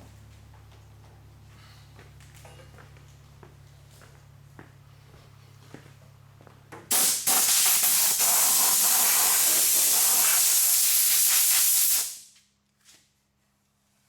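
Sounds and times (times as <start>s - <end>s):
heat gun blowing hiss: 6.9s - 12.3s.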